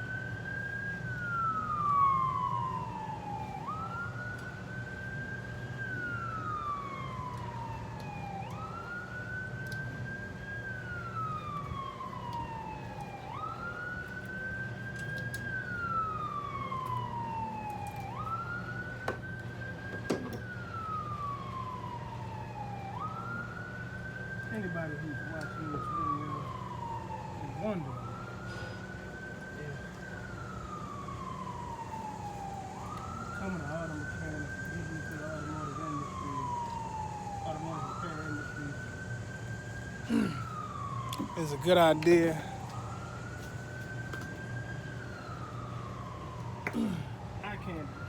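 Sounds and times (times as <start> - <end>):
siren wailing: 0.0 - 48.0.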